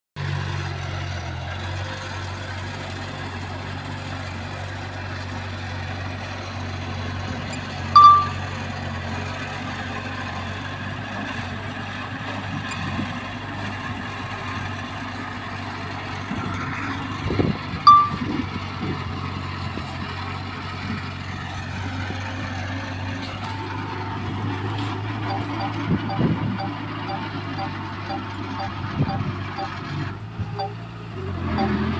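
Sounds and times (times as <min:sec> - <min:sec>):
diesel engine running: 0:00.2 - 0:31.9
short high beeps: 0:07.5 - 0:08.4, 0:17.9 - 0:18.3, 0:25.2 - 0:29.7, 0:30.6 - 0:30.8, 0:31.5 - 0:31.9.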